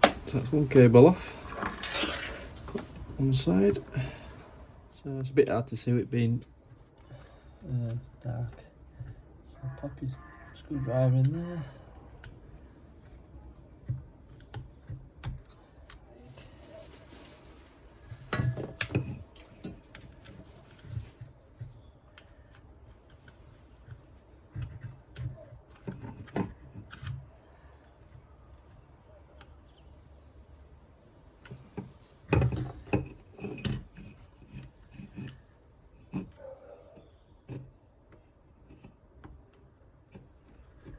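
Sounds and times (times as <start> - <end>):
screwdriver scraping plastic: 1.3 - 3.0.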